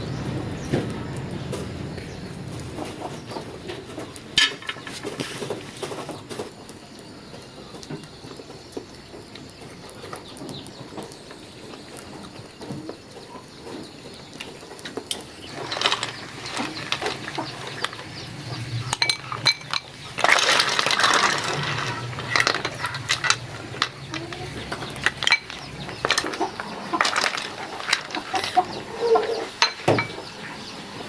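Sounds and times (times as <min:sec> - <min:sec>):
hard objects clinking: 0:15.1 - 0:30.3
rushing scraping noise: 0:15.3 - 0:30.3.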